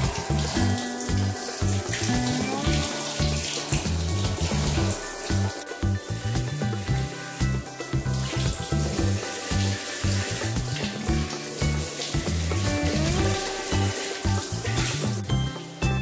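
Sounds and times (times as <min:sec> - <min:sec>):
background music: 0:00.0 - 0:16.0
shower spray hissing: 0:00.0 - 0:16.0.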